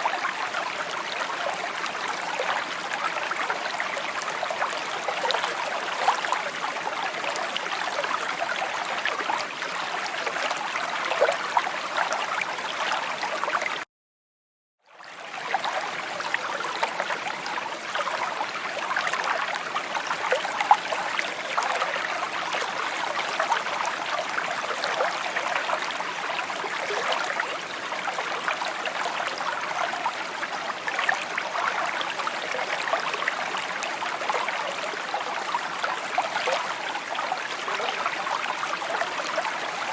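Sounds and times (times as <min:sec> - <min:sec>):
stream babbling over stones: 0:00.0 - 0:13.7, 0:15.1 - 0:39.9.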